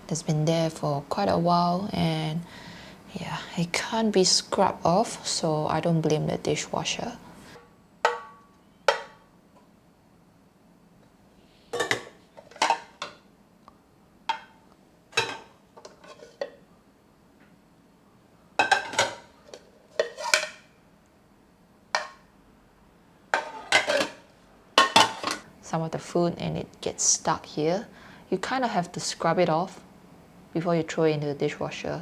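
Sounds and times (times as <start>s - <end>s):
dishes clinking: 18.6s - 19.3s, 24.8s - 25.5s.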